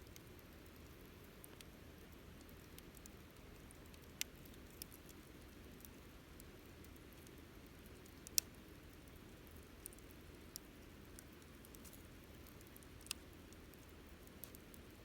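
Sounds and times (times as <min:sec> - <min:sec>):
faint low hiss: 0:00.0 - 0:15.0
campfire crackling and popping: 0:09.4 - 0:15.0.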